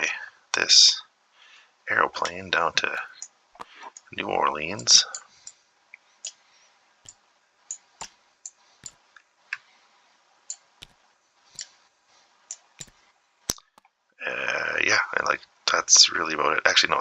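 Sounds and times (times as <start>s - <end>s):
computer mouse clicks: 7.0s - 9.0s, 10.5s - 11.0s, 12.5s - 13.9s.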